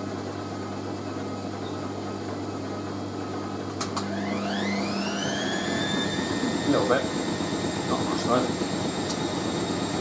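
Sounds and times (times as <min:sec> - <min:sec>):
washing machine motor hum: 0:00.0 - 0:10.0
motor whine speeding up: 0:04.0 - 0:10.0.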